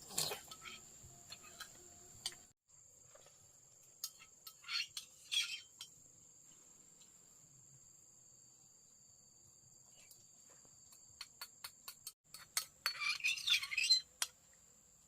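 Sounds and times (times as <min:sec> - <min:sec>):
crickets droning: 0:00.3 - 0:12.2.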